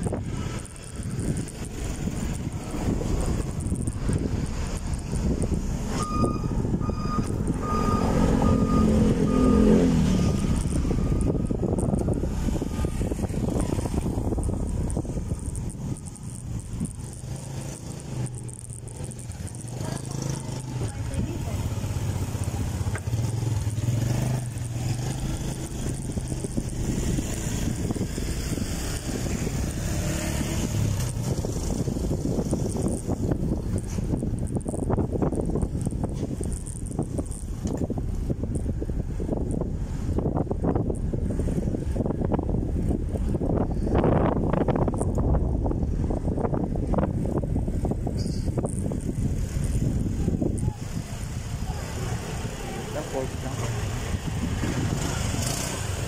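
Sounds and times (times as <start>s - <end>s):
vehicle engine: 0.0s - 56.0s
wind and road noise: 0.0s - 56.0s
reversing alarm beeping: 5.9s - 11.3s.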